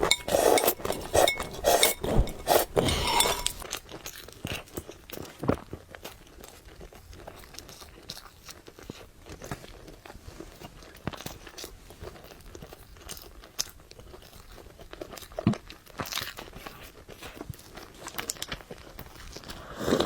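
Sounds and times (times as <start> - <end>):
person chewing noodles: 0.0 - 3.6.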